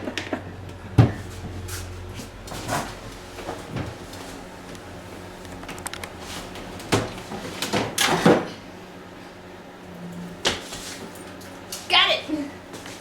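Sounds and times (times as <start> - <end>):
knocks and thumps inside refrigerator: 0.0 - 1.6, 6.5 - 8.5.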